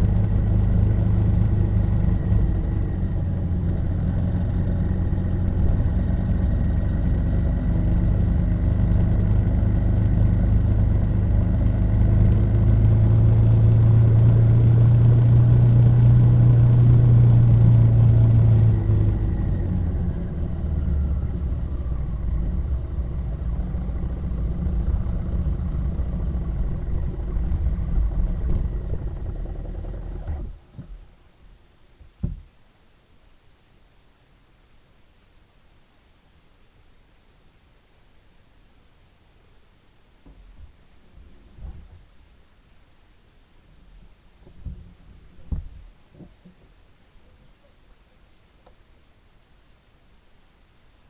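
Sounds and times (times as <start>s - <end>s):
vehicle engine running: 0.0s - 30.7s.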